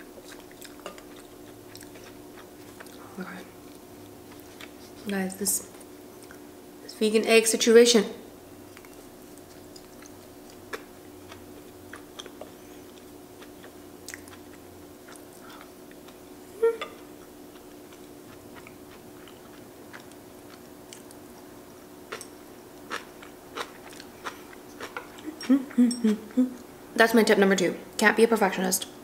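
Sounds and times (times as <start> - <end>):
faint hum: 0.0 - 29.0
person chewing with mouth closed: 0.2 - 5.1, 8.7 - 21.4, 22.1 - 26.7
person humming: 16.5 - 17.0, 25.3 - 26.6.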